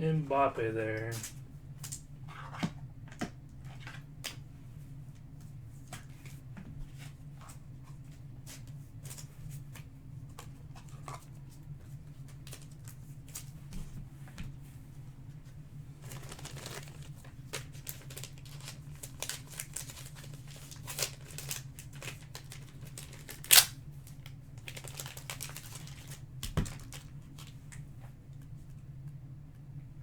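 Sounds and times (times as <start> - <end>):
steady low hum: 0.0 - 30.0
cards handled clicks and rustles: 16.0 - 27.8.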